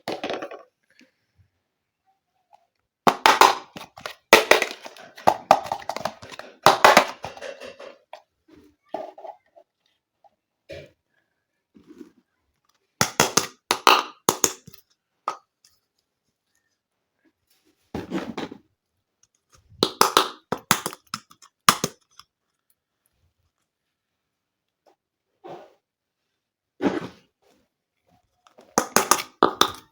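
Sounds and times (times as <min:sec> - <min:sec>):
plastic toy pieces clicking: 0:19.8 - 0:22.3.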